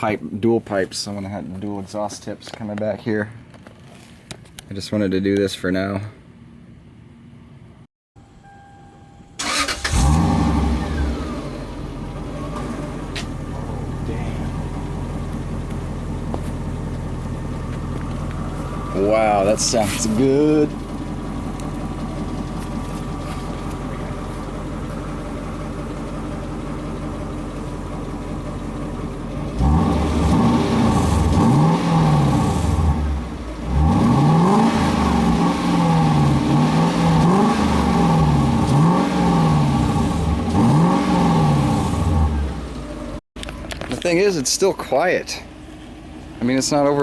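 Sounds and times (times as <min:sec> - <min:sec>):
car engine idling and revving: 0:09.4 - 0:44.2, 0:44.8 - 0:47.0.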